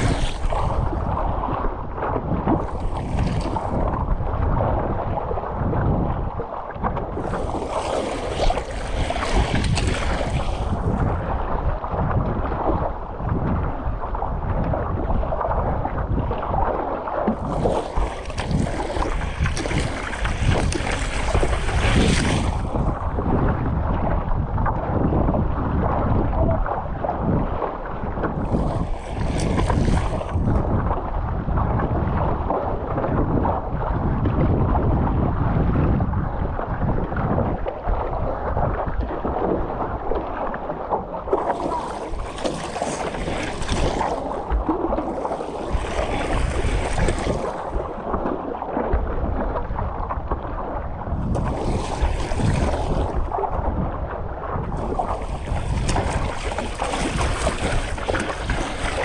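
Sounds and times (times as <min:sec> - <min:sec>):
water washing around board: 0:00.0 - 0:24.8, 0:27.6 - 0:32.7, 0:37.6 - 0:59.0
wind buffeting microphone: 0:00.0 - 0:59.0.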